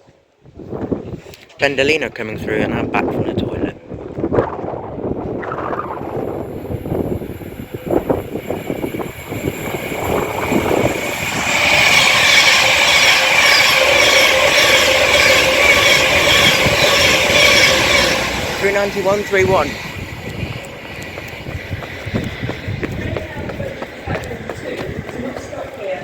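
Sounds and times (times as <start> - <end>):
electric train passing at speed: 2.3 - 26.0
high ringing tones: 8.2 - 20.1.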